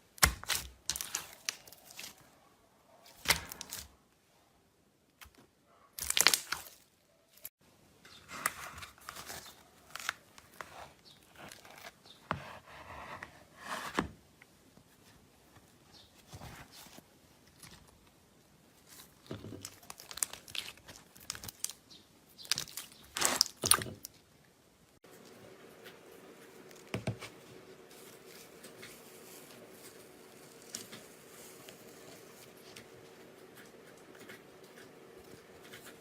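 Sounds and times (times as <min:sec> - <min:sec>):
slime crackling and popping: 0:00.2 - 0:02.2, 0:06.0 - 0:06.8, 0:19.6 - 0:21.8, 0:22.4 - 0:24.1.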